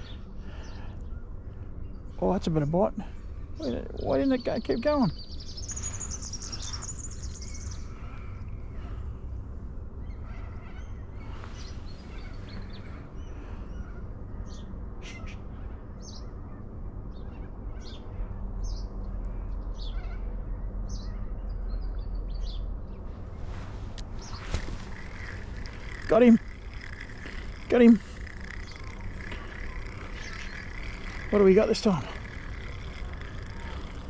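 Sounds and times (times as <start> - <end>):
birds chirping: 0.0 - 9.0, 10.0 - 15.3, 23.2 - 34.0.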